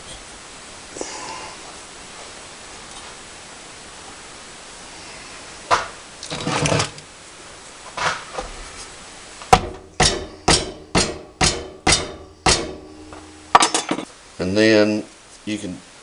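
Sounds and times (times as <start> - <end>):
metal scrape: 6.2 - 7.0
ringing strikes on metal: 9.6 - 14.1.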